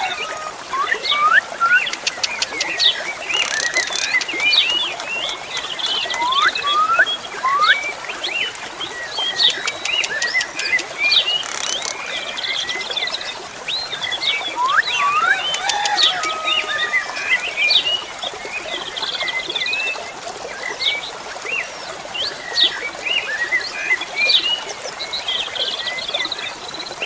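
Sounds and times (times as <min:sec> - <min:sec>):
starling singing varied whistles: 0:14.6 - 0:15.6.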